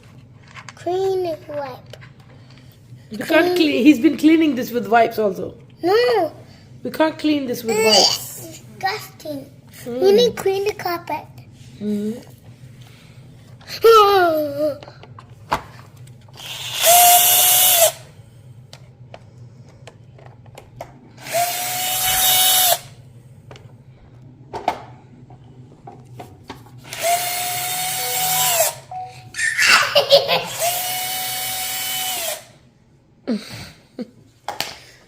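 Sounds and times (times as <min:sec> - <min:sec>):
power drill running: 0:16.4 - 0:18.1, 0:21.2 - 0:23.0, 0:26.9 - 0:29.8, 0:30.4 - 0:32.6.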